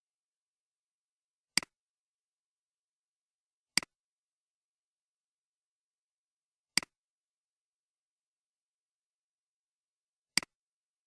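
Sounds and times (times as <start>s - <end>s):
computer mouse click: 10.3s - 10.6s.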